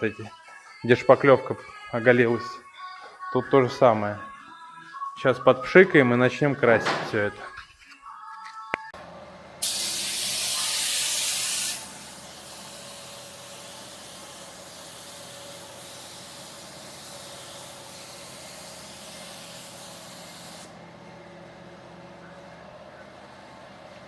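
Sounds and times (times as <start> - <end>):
aerosol can spraying: 9.6 - 20.7.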